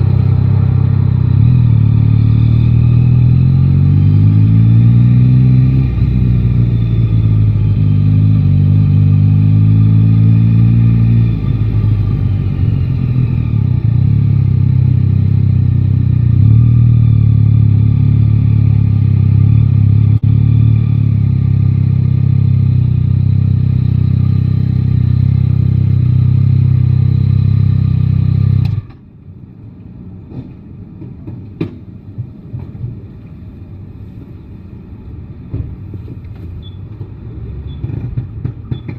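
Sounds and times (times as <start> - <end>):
motorcycle engine revving: 0.0 - 28.9.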